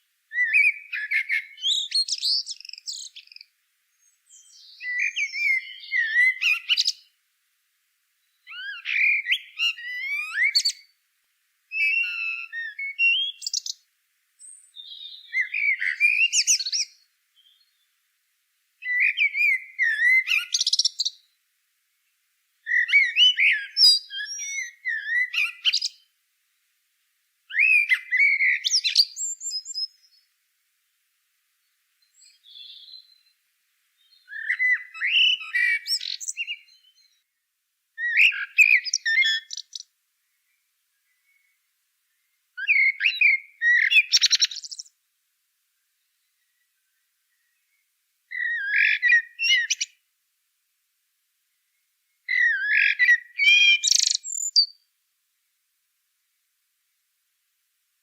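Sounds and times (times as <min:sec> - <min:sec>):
songbird chirping and whistling: 0:00.3 - 0:07.1, 0:08.2 - 0:11.0, 0:11.7 - 0:13.8, 0:14.4 - 0:17.9, 0:18.8 - 0:21.4, 0:22.6 - 0:26.1, 0:27.5 - 0:30.3, 0:32.0 - 0:33.4, 0:34.0 - 0:37.3, 0:38.0 - 0:44.9, 0:46.0 - 0:50.0, 0:51.7 - 0:54.9.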